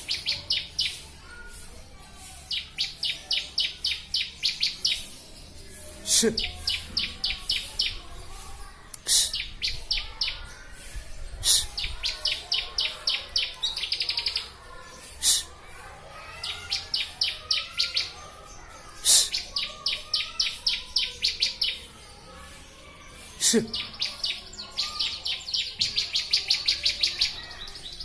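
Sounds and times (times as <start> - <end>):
bird trill: 0.0 - 1.6, 2.4 - 8.0, 16.2 - 28.0.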